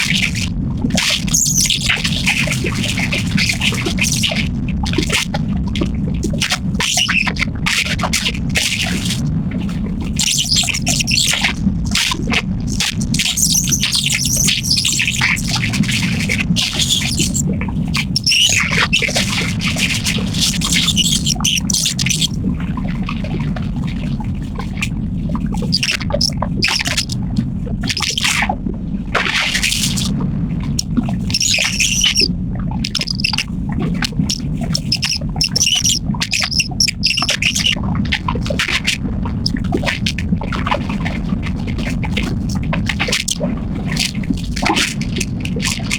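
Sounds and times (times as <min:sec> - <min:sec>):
boat engine rumble: 0:08.6 - 0:45.9
birds squawking and chirping: 0:16.7 - 0:17.4, 0:18.1 - 0:18.6, 0:20.6 - 0:22.3, 0:31.3 - 0:32.3, 0:32.9 - 0:33.4, 0:34.3 - 0:37.8.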